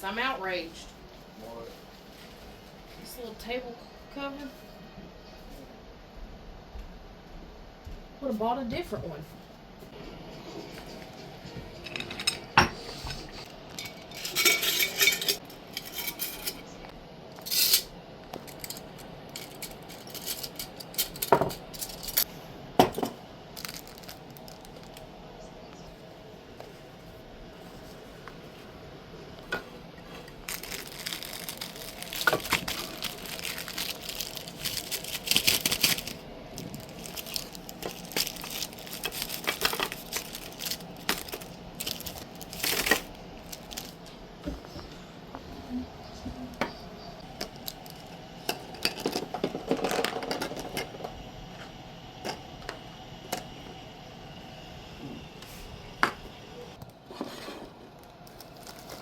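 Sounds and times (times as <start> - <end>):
items clicking and knocking: 18.3 - 24.9, 29.5 - 44.8, 46.6 - 51.1
plastic packaging crinkling: 23.6 - 25.1, 30.2 - 44.1, 47.4 - 48.1, 58.0 - 59.0.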